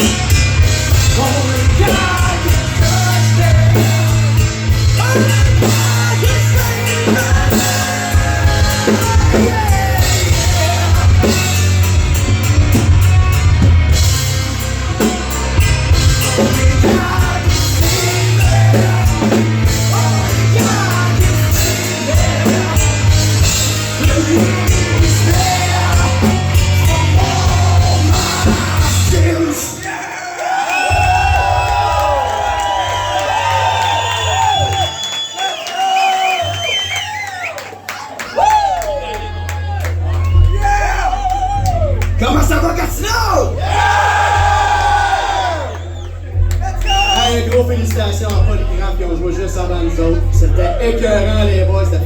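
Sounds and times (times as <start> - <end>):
bass guitar: 0.0 - 29.8, 30.9 - 35.2, 38.4 - 52.0
drums: 0.0 - 52.0
person singing: 1.1 - 4.4, 5.0 - 11.8, 16.4 - 29.9.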